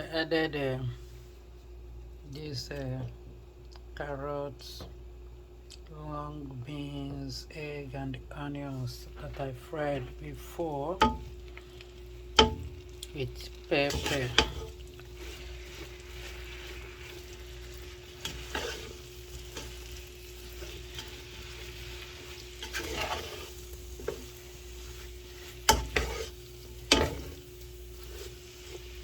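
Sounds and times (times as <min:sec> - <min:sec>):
steady hum: 0:00.0 - 0:29.0
vegetables sizzling in a frying pan: 0:08.8 - 0:29.0
spatula knocking and scraping pan: 0:09.2 - 0:29.0.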